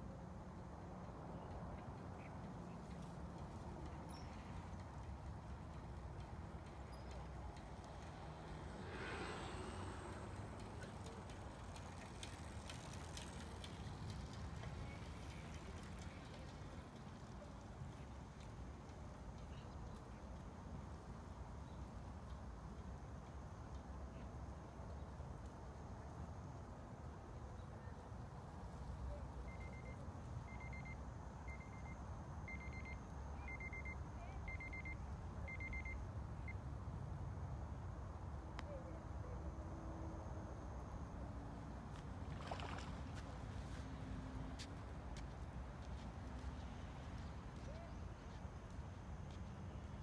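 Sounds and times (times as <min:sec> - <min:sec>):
short electronic beeps: 0:29.5 - 0:36.0.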